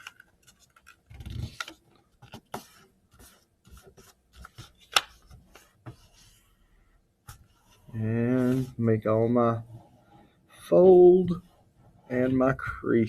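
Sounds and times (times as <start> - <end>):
paper rustling and creasing: 0.0 - 6.4.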